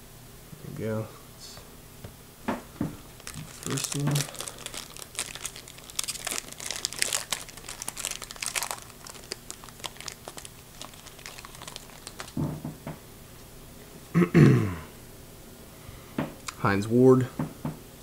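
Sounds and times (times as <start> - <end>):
card wrapper crinkling and tearing: 3.2 - 12.5.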